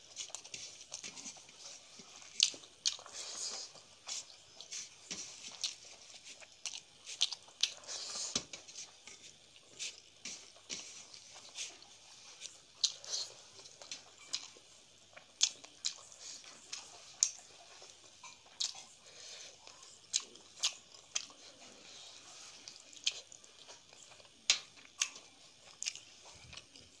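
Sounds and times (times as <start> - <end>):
person chewing food: 0.0 - 27.0.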